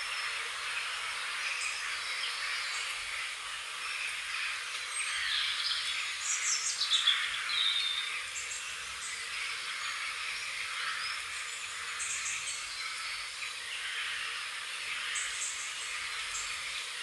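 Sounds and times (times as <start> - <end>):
high-pitched background hiss: 0.0 - 17.0.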